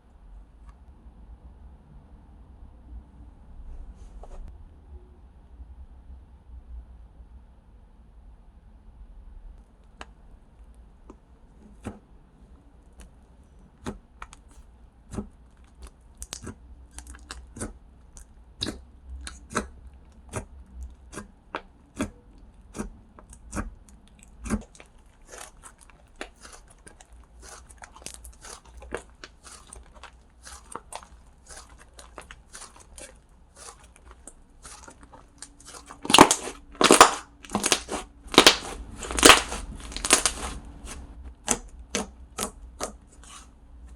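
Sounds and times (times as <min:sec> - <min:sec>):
slime clicks and crackles: 0:15.6 - 0:19.7, 0:22.7 - 0:43.4
packaging crinkling: 0:24.7 - 0:41.1.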